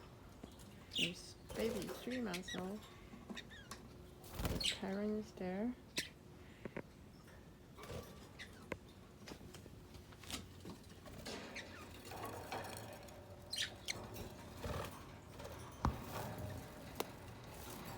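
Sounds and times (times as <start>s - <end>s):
pet birds chirping: 0.4s - 3.8s, 4.4s - 5.3s, 5.9s - 6.2s, 8.2s - 8.9s, 11.2s - 14.8s
scratching and pattering in cage: 7.8s - 17.9s.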